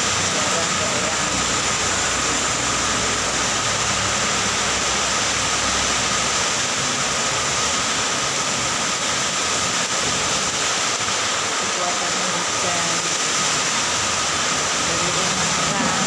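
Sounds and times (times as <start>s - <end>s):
vehicle driving through rain: 0.0s - 16.0s
low engine rumble: 12.5s - 16.0s.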